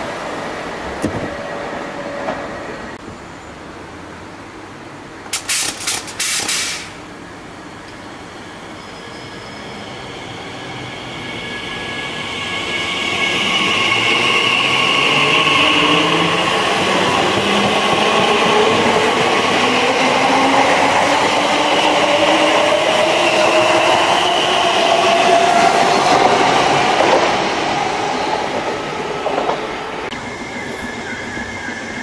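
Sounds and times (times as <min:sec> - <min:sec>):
train running: 0:00.0 - 0:32.0.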